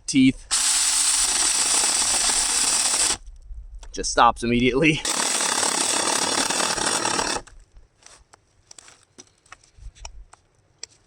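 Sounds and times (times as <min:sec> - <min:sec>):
mini chainsaw cutting wood: 0:00.5 - 0:03.2, 0:05.0 - 0:07.5.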